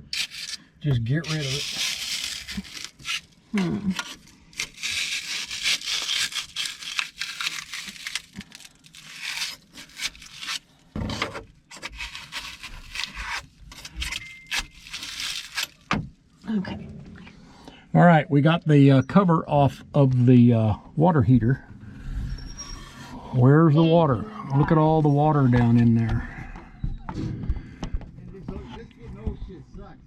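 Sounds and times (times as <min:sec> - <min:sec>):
scraping and tearing spray foam: 0:00.0 - 0:15.9.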